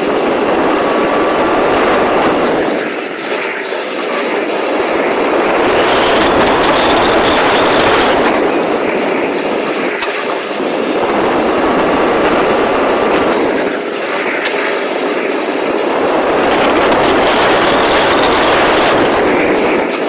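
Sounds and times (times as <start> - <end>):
rc car driving over rough ground: 4.8 - 8.7, 16.0 - 20.0.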